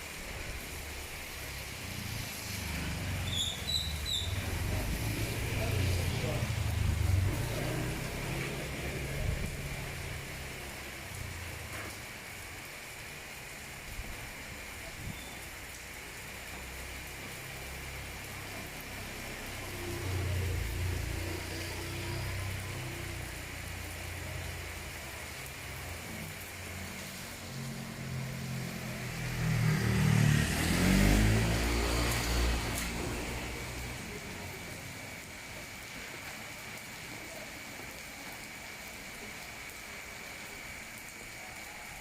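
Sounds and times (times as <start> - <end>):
steady rain falling: 0.0 - 42.0
vehicles going by: 0.5 - 12.4, 15.6 - 36.0
engine approaching: 3.9 - 10.8, 27.3 - 34.8.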